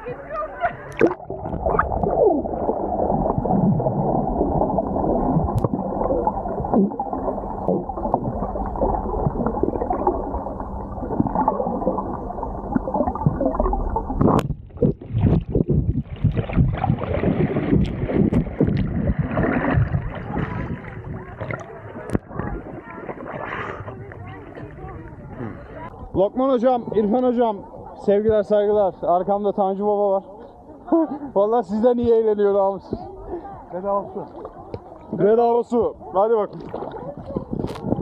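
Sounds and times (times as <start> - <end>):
muffled underwater gurgling: 0.2 - 26.2, 35.9 - 38.0
water splashing and rushing: 0.9 - 25.9, 36.2 - 38.0.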